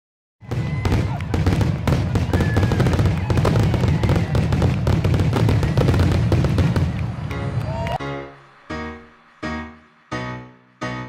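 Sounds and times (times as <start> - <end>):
fireworks bangs and crackles: 0.4 - 8.0.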